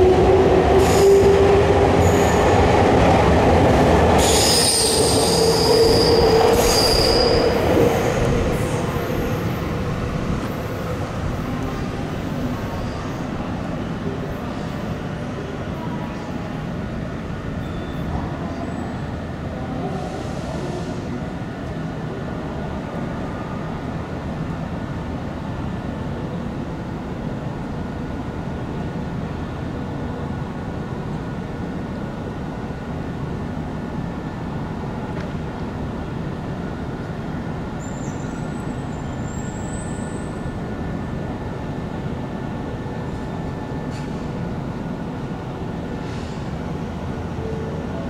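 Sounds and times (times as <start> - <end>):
rumble of electric trains: 0.0 - 48.0
high-pitched squeal: 4.2 - 9.5.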